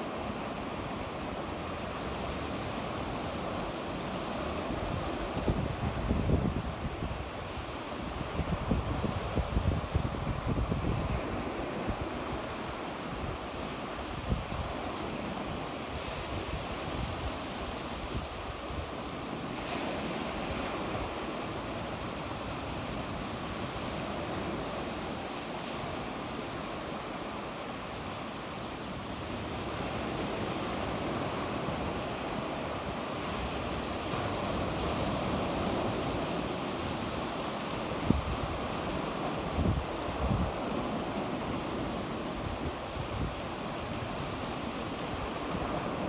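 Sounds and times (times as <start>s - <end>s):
sea waves washing onto shore: 0.0s - 46.0s
wind on microphone: 4.5s - 19.0s, 29.3s - 46.0s.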